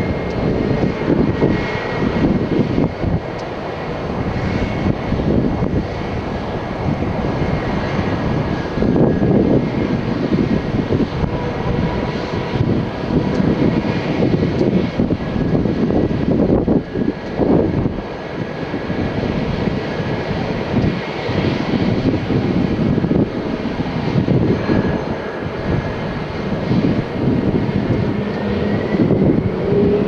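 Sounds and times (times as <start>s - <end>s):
faint jet engine whine: 0.0s - 30.0s
jet engines roaring: 0.0s - 30.0s.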